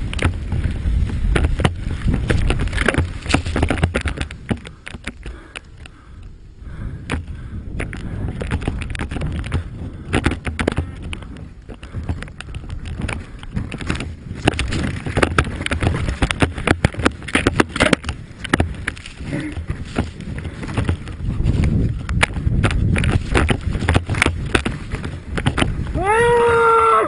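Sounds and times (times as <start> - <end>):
snowmobile engine rumbling: 0.0 - 27.0
sharp knocks and clatters: 1.3 - 5.3, 7.8 - 21.2, 22.1 - 25.9.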